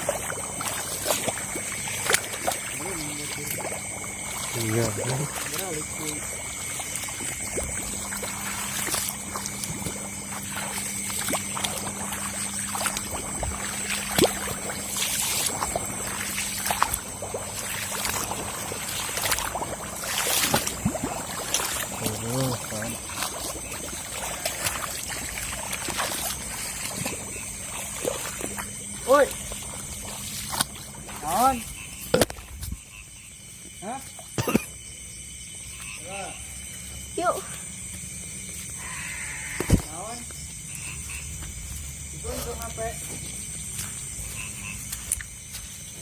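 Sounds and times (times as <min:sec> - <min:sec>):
water splashes: 0:00.0 - 0:34.8
water sloshing as people wade: 0:00.0 - 0:46.0.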